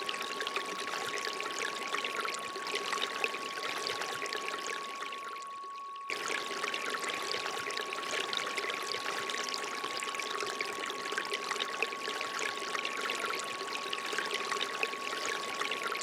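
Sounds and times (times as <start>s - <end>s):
steady pure tone: 0.0s - 16.0s
water trickling from fountain spout: 0.0s - 16.0s.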